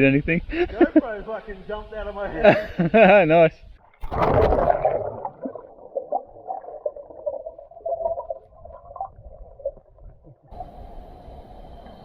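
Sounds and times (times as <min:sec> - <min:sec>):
muffled underwater bubbling: 0:03.9 - 0:11.1.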